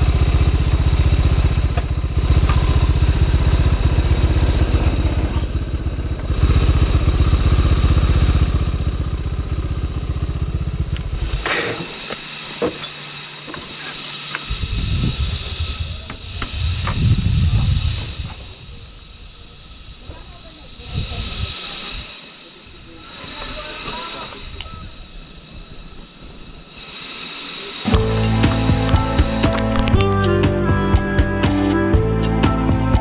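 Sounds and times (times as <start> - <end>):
motorcycle engine idling: 0.0 - 11.5, 27.9 - 33.0.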